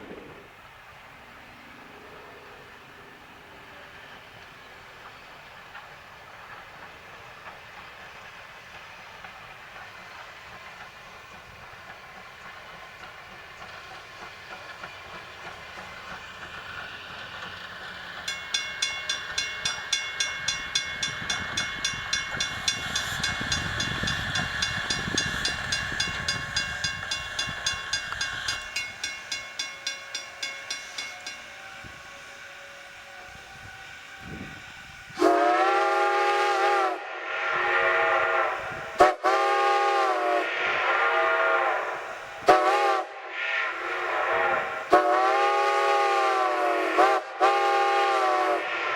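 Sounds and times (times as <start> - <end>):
train rumbling past: 0.0 - 48.9
bell ringing in quick strokes: 18.3 - 32.0
steam whistle blasts: 21.0 - 48.9.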